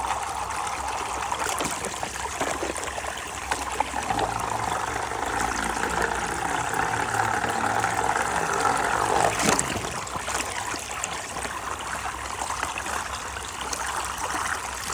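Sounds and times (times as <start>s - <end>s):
running water: 0.0s - 14.9s
motor humming: 3.9s - 12.3s.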